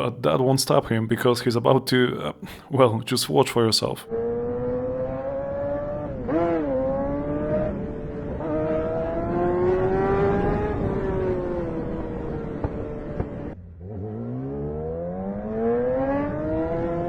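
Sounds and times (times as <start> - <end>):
motorcycle engine revving: 4.1 - 17.0.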